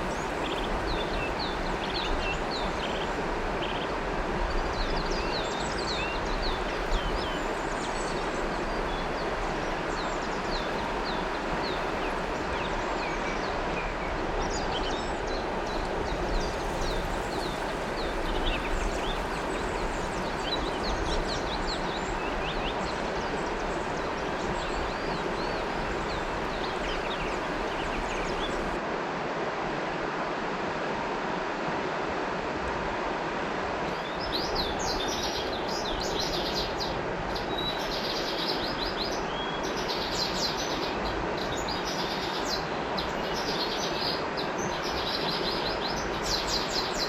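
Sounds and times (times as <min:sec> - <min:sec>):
river water flowing: 0:00.0 - 0:47.0
birds chirping: 0:16.3 - 0:28.8.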